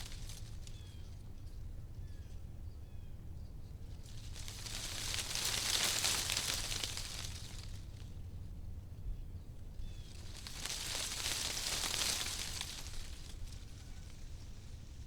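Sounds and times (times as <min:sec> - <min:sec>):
wind rustling tree leaves: 0:00.0 - 0:01.3, 0:03.8 - 0:08.4, 0:09.6 - 0:15.0.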